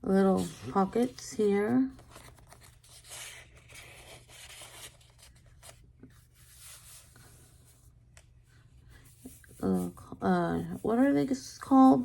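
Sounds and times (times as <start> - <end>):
paper rustling and sliding: 0.2 - 7.8.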